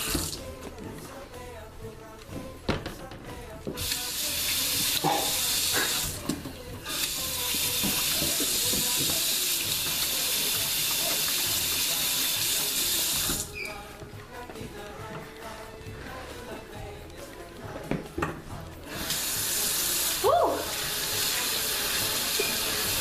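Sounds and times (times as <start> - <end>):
tap water running into sink: 0.0 - 0.4, 3.7 - 13.5, 18.9 - 23.0.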